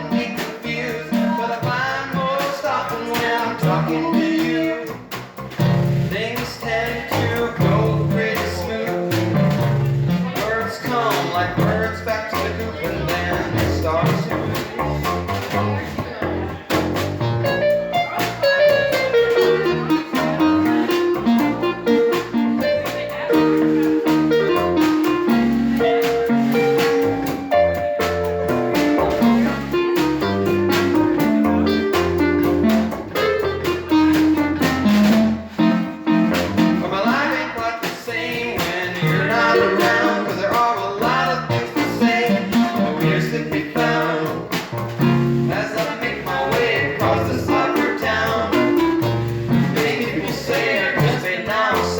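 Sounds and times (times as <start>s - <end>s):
live band playing: 0.0s - 51.9s
plucked guitar: 9.1s - 37.2s.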